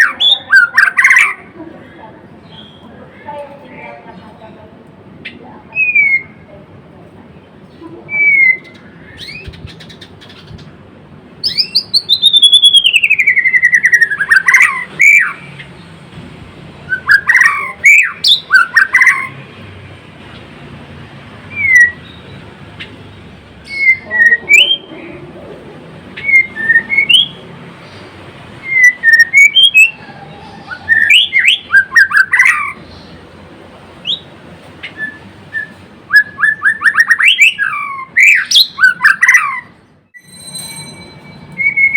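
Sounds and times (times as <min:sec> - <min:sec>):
bird singing whistled phrases: 0:05.8 - 0:06.4, 0:08.1 - 0:09.9, 0:11.4 - 0:15.5, 0:16.9 - 0:19.4, 0:21.5 - 0:22.3, 0:23.6 - 0:24.9, 0:26.2 - 0:27.4, 0:28.6 - 0:32.8, 0:34.8 - 0:40.3, 0:41.6 - 0:41.9.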